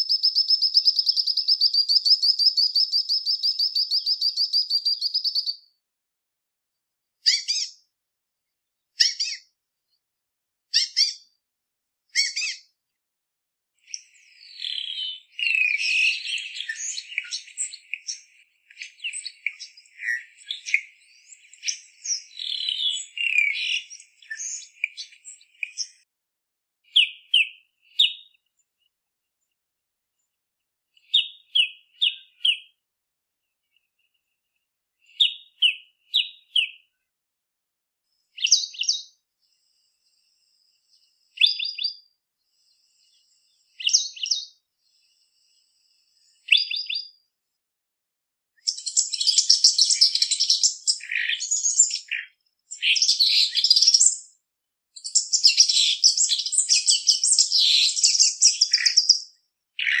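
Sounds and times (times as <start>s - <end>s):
fast chattering birdsong: 0.0s - 5.7s, 48.7s - 54.3s, 55.0s - 59.2s.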